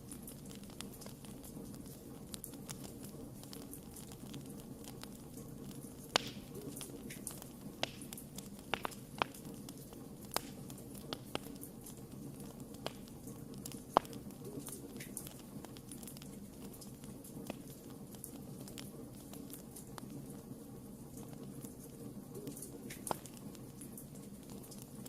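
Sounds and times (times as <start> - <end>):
campfire crackles and pops: 0.0 - 25.0.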